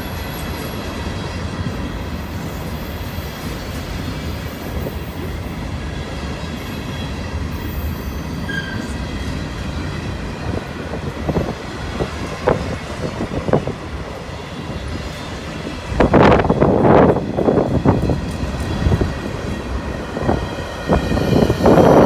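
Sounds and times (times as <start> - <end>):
freight train rumbling past: 0.0 - 22.0
wheel squeal: 7.6 - 9.0.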